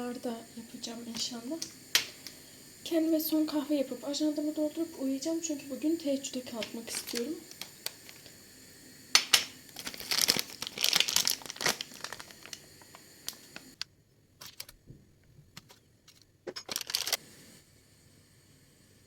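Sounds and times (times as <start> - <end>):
crinkling and rustling: 6.6 - 8.3, 9.2 - 17.2
small clicks: 6.6 - 8.3, 15.6 - 17.2.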